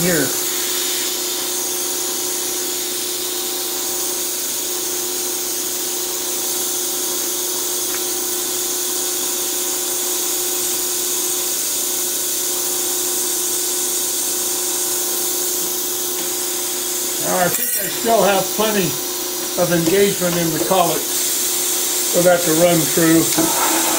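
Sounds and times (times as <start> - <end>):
shop machinery motor hum: 16.2 - 23.9.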